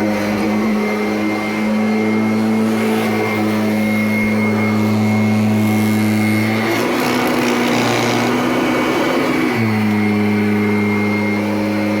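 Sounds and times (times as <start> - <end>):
vacuum cleaner motor hum: 0.0 - 12.0.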